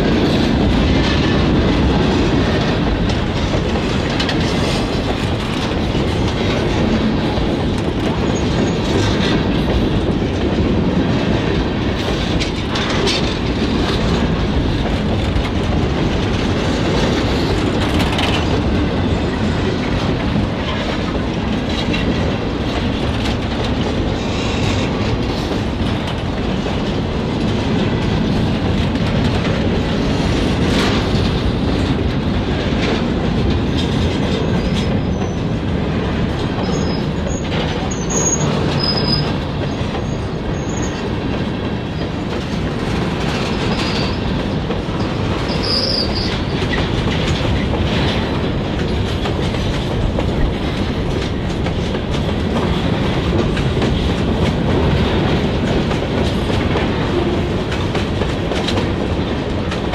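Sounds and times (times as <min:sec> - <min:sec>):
clickety-clack over rail joints: 0:00.0 - 0:59.9
freight cars rumbling on rails: 0:00.0 - 0:59.9
high wheel squeals: 0:36.7 - 0:39.4, 0:45.5 - 0:46.4.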